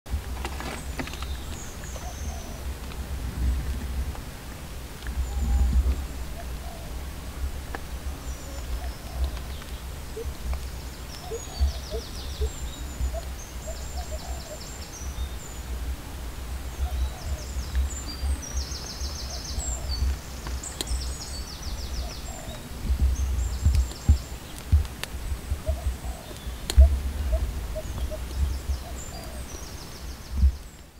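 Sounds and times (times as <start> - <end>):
birds chirping and trilling: 0.4 - 3.6, 5.0 - 30.9
low rumble: 2.2 - 10.6, 21.0 - 29.5.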